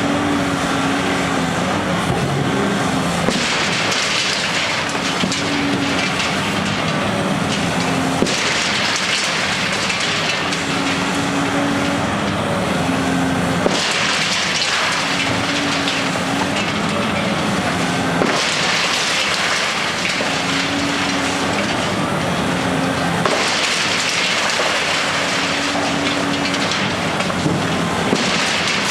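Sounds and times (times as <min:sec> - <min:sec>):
demolition machinery engine: 0:00.0 - 0:28.9
dense crackling noise: 0:03.2 - 0:12.4, 0:13.2 - 0:28.9.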